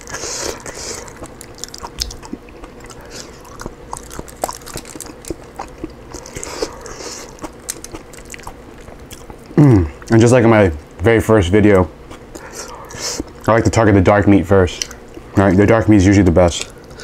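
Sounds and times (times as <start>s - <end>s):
chewing and wet mouth clicks: 0.0s - 10.2s, 12.1s - 13.6s, 14.8s - 15.3s.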